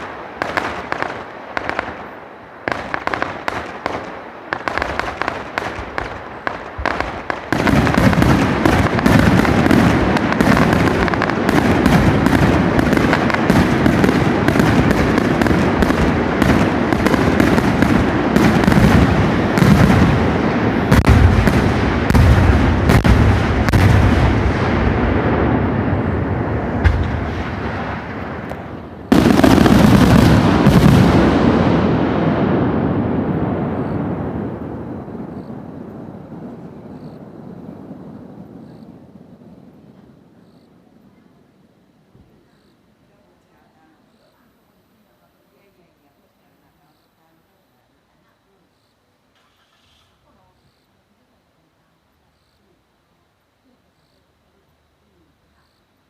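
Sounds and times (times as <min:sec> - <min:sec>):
fireworks bangs and crackling: 0:00.0 - 0:41.3.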